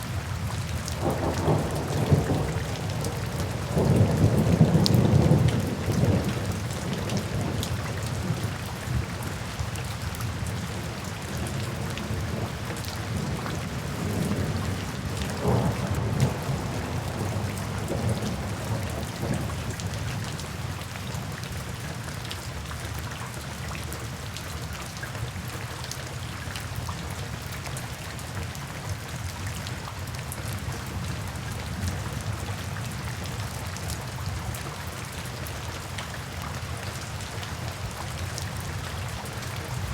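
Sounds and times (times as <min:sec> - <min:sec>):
steady rain falling: 0:00.0 - 0:39.9
low thunder rumbles: 0:00.4 - 0:09.3, 0:11.3 - 0:20.0.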